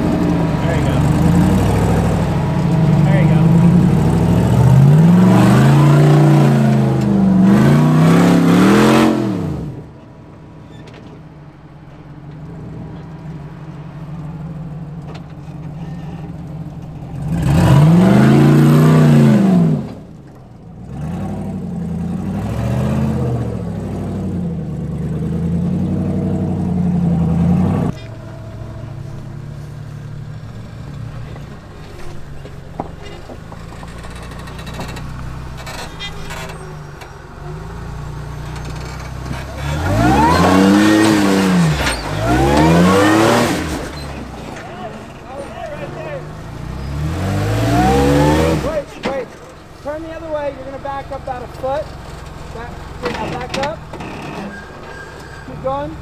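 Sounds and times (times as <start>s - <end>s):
engine idling: 0.0s - 8.7s, 9.3s - 22.4s, 23.5s - 46.9s, 48.2s - 56.0s
engine revving in bursts: 0.0s - 9.9s, 17.2s - 20.1s, 20.8s - 30.8s, 37.5s - 53.8s.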